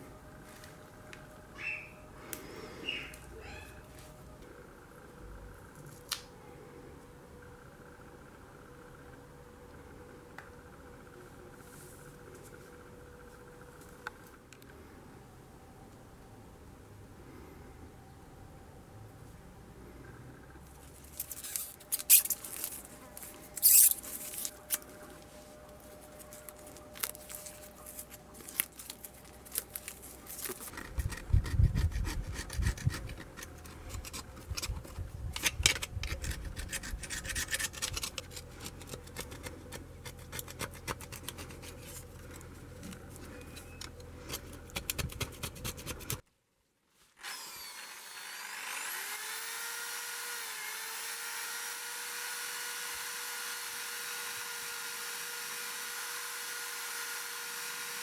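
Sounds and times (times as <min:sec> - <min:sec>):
scraping rust on metal: 0:21.1 - 0:24.8, 0:27.4 - 0:46.2
electric power tool whine: 0:47.2 - 0:58.0.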